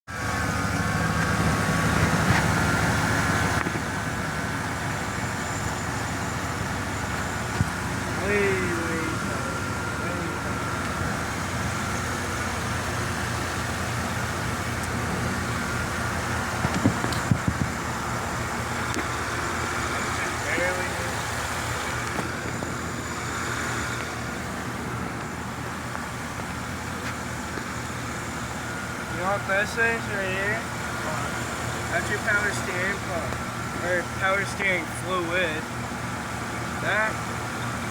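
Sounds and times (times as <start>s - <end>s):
gasoline engine idling: 0.1s - 37.9s.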